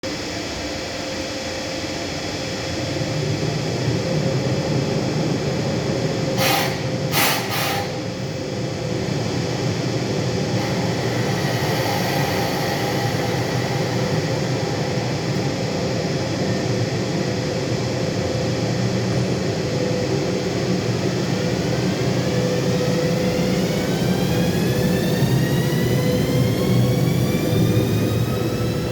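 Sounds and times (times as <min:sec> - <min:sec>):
locomotive cooling blowers: 0:00.1 - 0:28.9
rising whine: 0:00.1 - 0:28.9
short hisses: 0:06.4 - 0:08.0.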